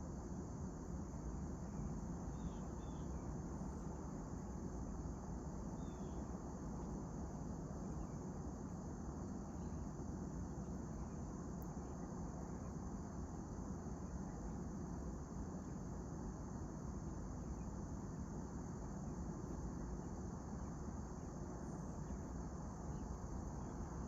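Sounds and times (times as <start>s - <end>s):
constant low rumble: 0.0s - 24.0s
crickets chirping: 0.0s - 24.0s
faint bird chirps: 1.6s - 4.6s, 5.7s - 6.3s, 9.2s - 10.0s, 17.4s - 17.9s.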